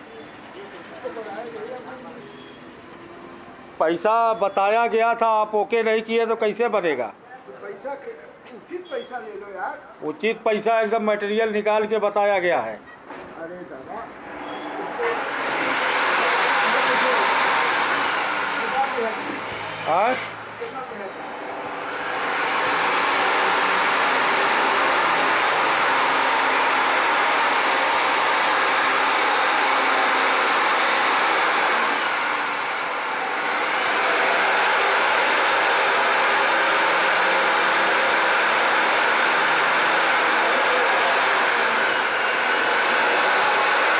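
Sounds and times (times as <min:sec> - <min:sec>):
grinder disc grinding steel: 0:14.8 - 0:43.9.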